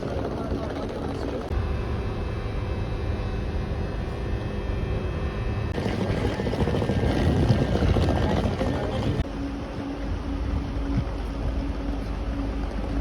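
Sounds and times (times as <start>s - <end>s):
faint steady tones: 0.0s - 7.2s, 7.8s - 13.0s
train rumbling: 3.6s - 13.0s.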